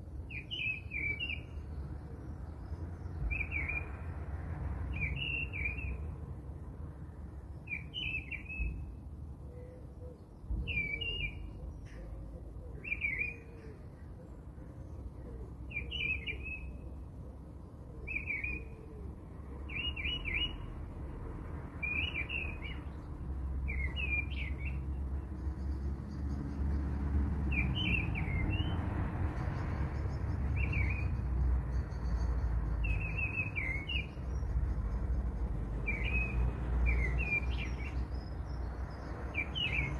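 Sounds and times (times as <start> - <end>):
small bird chirping: 29.4 - 39.9.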